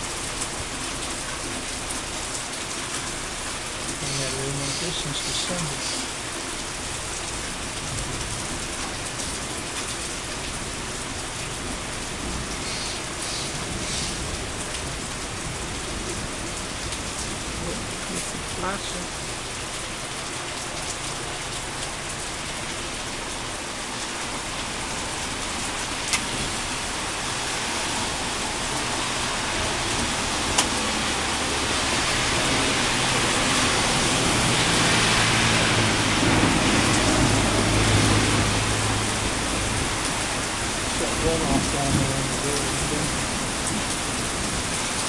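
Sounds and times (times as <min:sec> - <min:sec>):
heavy rain pouring: 0:00.0 - 0:45.0.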